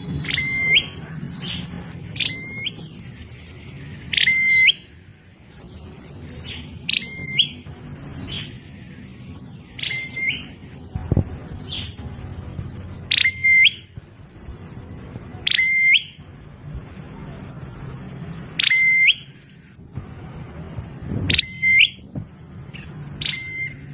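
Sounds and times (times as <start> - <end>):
bird chirping: 0.0 - 16.2, 17.8 - 20.0, 21.0 - 23.9
bird whistle call: 0.2 - 1.0, 4.1 - 4.8.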